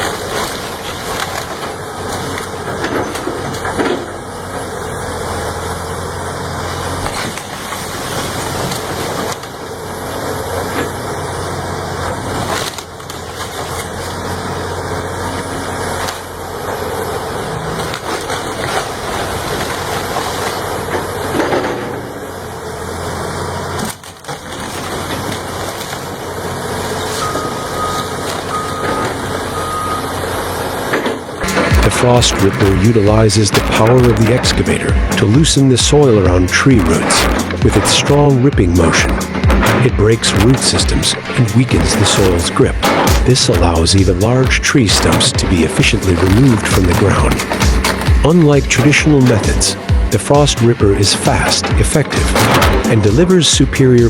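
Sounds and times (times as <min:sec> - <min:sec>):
wood cracking and splintering: 0:00.0 - 0:05.8, 0:06.6 - 0:22.2, 0:23.5 - 0:54.0
heavy machinery running: 0:00.0 - 0:54.0
reversing beeper: 0:27.1 - 0:30.7, 0:31.4 - 0:53.4.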